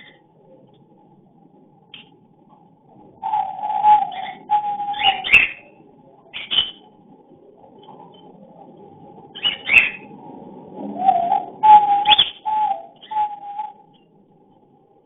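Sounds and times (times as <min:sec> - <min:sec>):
raspy whistled notes: 0:03.2 - 0:05.7, 0:10.8 - 0:14.0.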